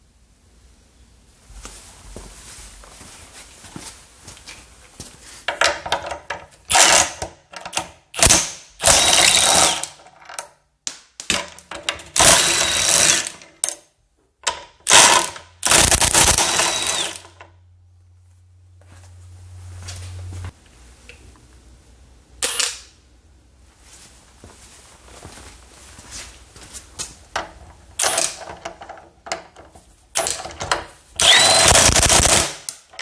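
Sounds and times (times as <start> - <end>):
impact wrench hammering: 14.9 - 17.3
low hum: 15.6 - 23.8.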